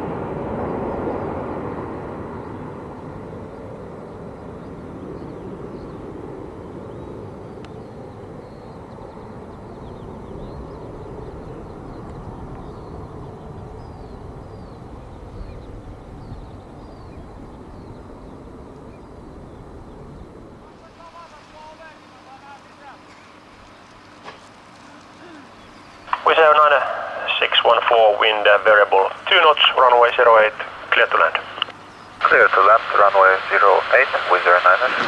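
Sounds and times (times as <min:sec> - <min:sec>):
distant jet engine rumble: 0:00.0 - 0:35.0
bird chirping: 0:25.4 - 0:35.0.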